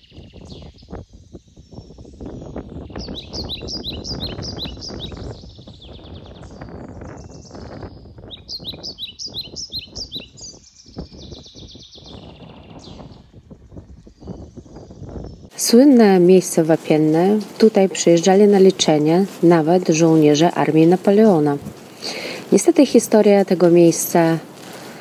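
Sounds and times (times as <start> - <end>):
songbird chirping: 0.0 - 25.0.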